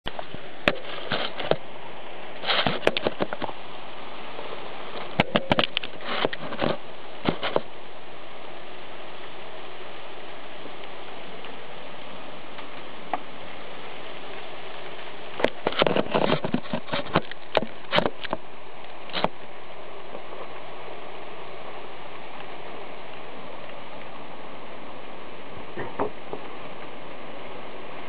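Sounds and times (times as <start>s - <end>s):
steady rain hiss: 0.0s - 28.0s.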